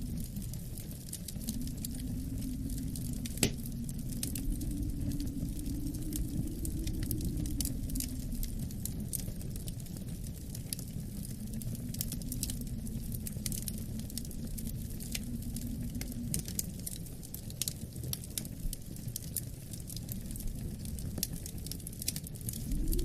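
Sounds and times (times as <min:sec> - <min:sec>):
wind rumble: 0:00.0 - 0:23.0
wood fire crackling: 0:00.0 - 0:23.0.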